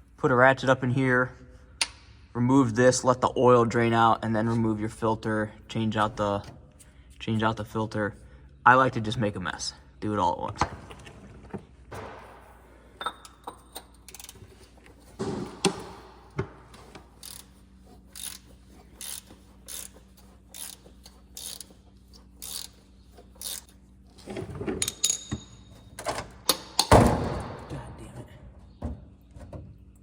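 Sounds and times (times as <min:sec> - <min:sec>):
socket ratchet clicking: 0:14.0 - 0:14.4, 0:17.0 - 0:18.4, 0:19.0 - 0:21.8, 0:22.4 - 0:22.8, 0:23.4 - 0:23.7.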